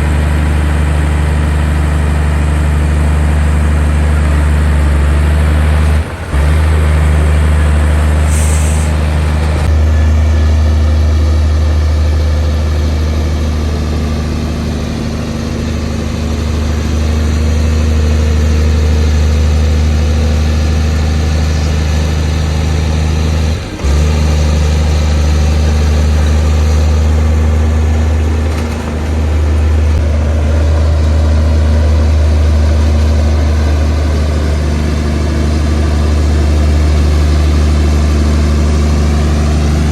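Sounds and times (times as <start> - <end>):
heavy diesel engine running: 0.0 - 39.9
short high hiss: 8.3 - 9.0.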